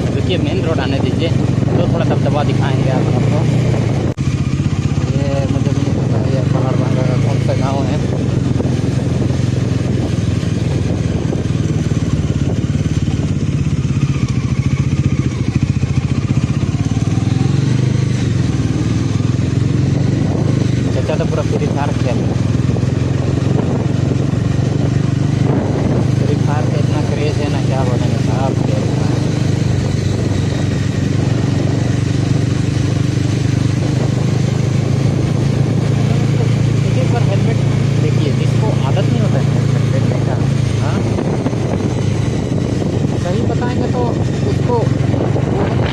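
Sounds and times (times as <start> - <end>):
motorcycle engine running: 0.0 - 45.9
rushing wind noise: 0.0 - 45.9.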